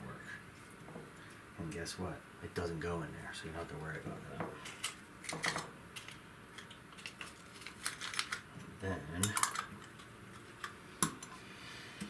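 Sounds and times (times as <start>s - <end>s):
small hard parts clattering: 4.6s - 8.5s, 9.2s - 11.3s.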